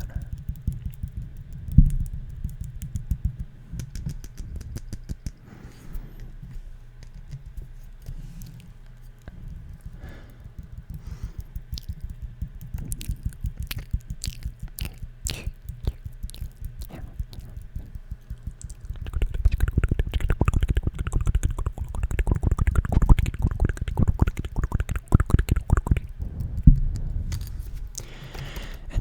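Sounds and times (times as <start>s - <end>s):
light tapping: 0.0s - 5.4s
mouth sounds: 12.8s - 29.0s.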